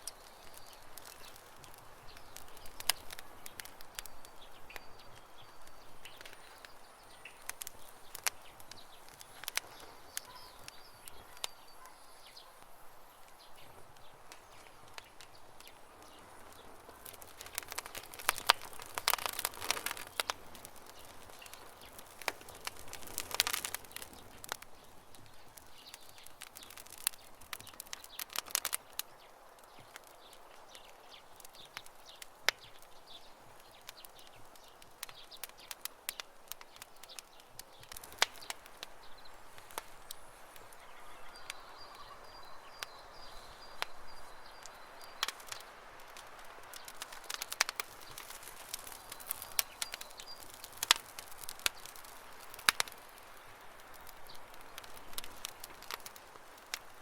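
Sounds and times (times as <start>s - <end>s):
bird chirping: 0.0s - 28.4s, 36.7s - 45.9s, 46.7s - 53.5s
campfire crackling: 0.0s - 57.0s.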